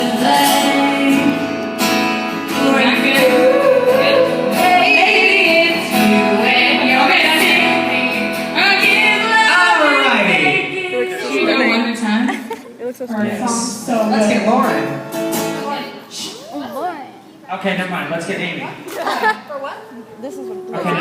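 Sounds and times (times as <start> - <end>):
women singing vocal warm-ups: 0.0 - 1.4, 2.5 - 11.9.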